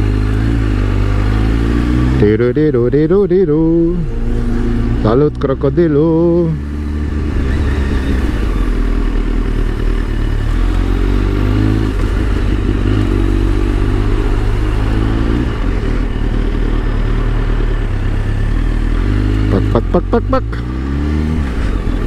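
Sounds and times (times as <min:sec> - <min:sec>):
motorcycle engine at low revs: 0:00.0 - 0:22.0.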